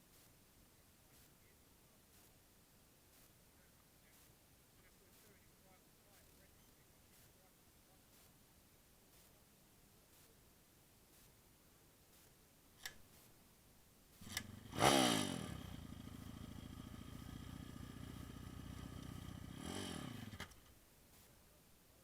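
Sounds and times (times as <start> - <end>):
motorbike engine revving and idling: 14.2 - 20.6.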